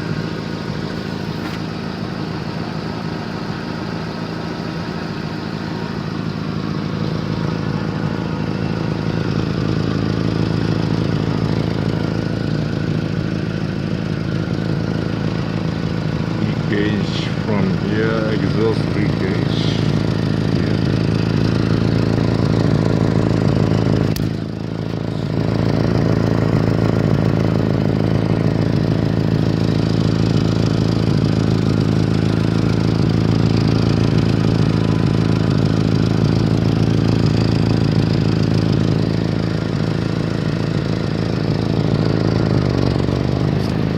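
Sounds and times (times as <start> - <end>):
car engine idling with raspy exhaust: 0.0 - 43.9.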